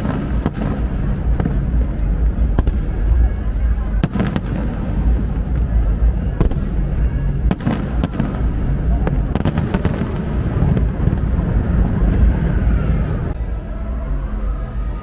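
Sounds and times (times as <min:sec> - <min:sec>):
fireworks cracking and popping: 0:00.0 - 0:12.5
low rumble of bursts: 0:00.0 - 0:15.0.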